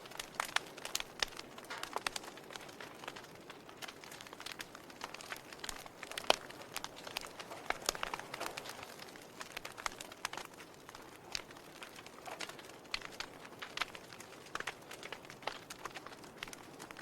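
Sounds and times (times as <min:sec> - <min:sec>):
fire soft hiss: 0:00.0 - 0:17.0
log fire crackling: 0:00.0 - 0:17.0.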